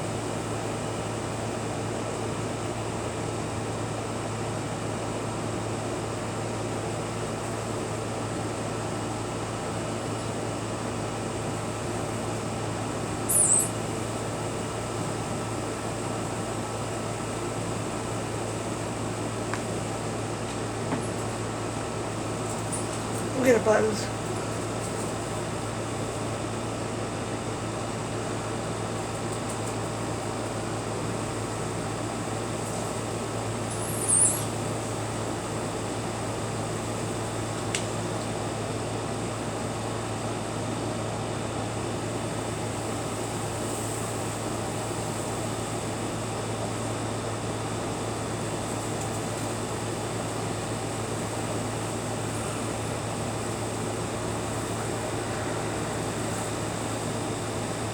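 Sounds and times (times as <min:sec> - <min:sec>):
steady hum with hiss: 0:00.0 - 0:57.9
high chirp: 0:13.3 - 0:13.8.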